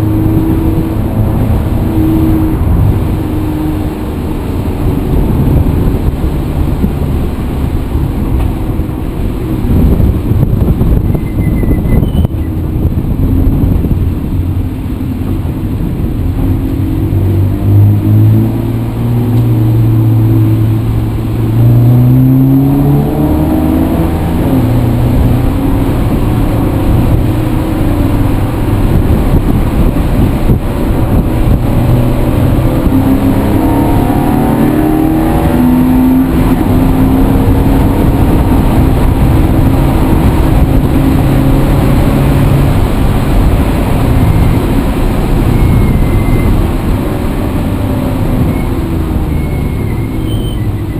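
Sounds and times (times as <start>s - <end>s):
heavy low rumble: 0.0s - 50.9s
vehicle engine accelerating: 0.0s - 50.9s.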